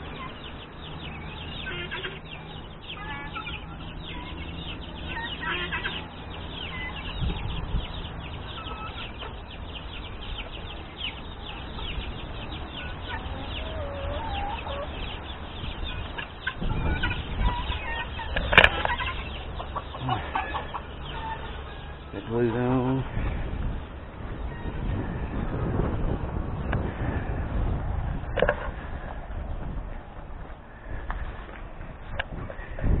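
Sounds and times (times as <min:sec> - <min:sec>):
lower bird calls: 0:00.0 - 0:25.5
chickens clucking: 0:00.0 - 0:33.0.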